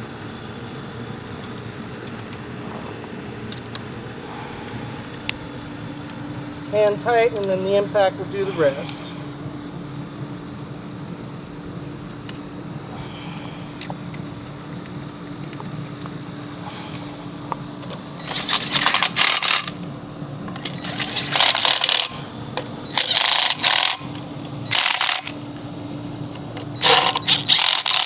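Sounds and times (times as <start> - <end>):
steady low hum: 0.0 - 28.0
impact driver rattling bursts: 18.2 - 19.8, 20.5 - 25.4, 26.6 - 28.0.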